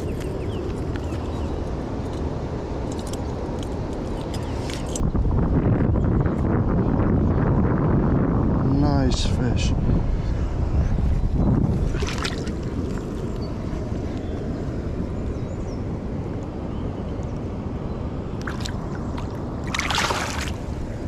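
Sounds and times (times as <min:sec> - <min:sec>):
wind on microphone: 0:00.0 - 0:21.0
water splashing: 0:11.9 - 0:12.9, 0:18.4 - 0:20.8
river water rushing: 0:18.4 - 0:21.0.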